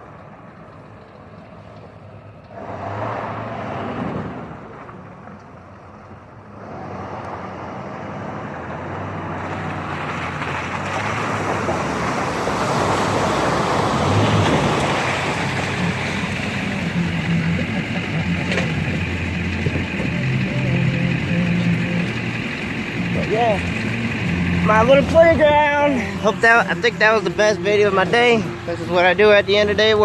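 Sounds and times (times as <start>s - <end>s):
truck engine under load: 0.0s - 30.0s
tyres churning mud: 6.5s - 30.0s
mud and water splashing: 9.0s - 30.0s.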